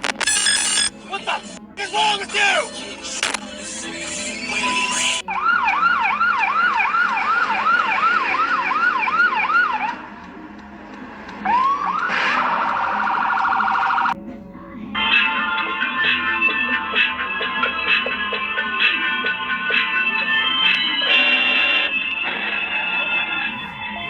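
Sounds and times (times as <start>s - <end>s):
emergency siren yelping: 4.6s - 10.1s, 11.4s - 14.2s, 15.0s - 24.0s.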